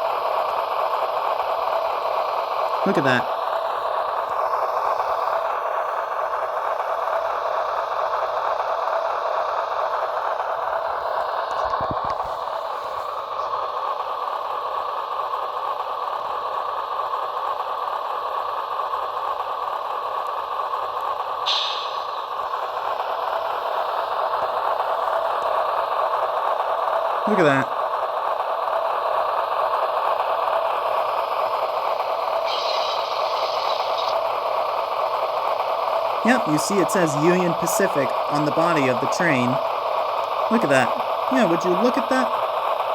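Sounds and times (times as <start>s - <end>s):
model locomotive diesel engine sound: 0.0s - 42.9s
brief hiss: 21.5s - 22.1s.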